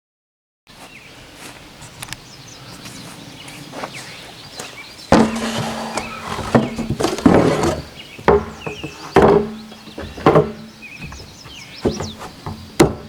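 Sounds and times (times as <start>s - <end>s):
wooden boards knocking: 5.1s - 13.0s.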